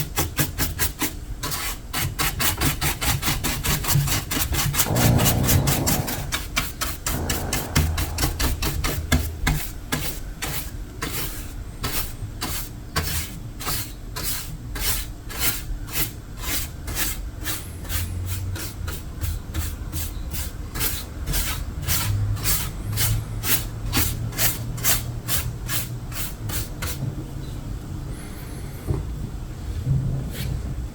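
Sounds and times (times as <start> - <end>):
abrasive tool rasping paint: 3.6 - 9.0.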